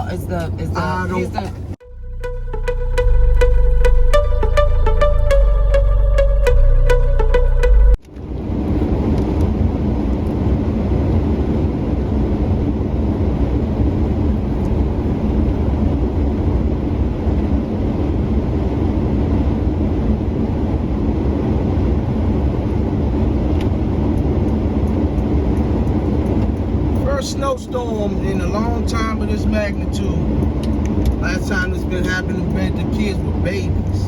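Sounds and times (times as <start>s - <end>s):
engine and road noise in cab: 0.0s - 1.8s, 7.9s - 34.0s.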